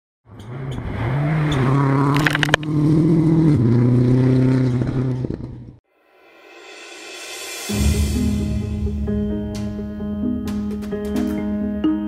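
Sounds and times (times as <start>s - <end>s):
rally car engine revving: 0.3s - 5.8s.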